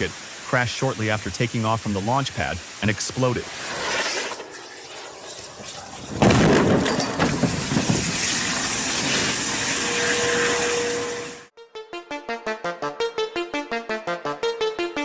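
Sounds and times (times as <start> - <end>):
rocket rushing roar: 3.4 - 11.5.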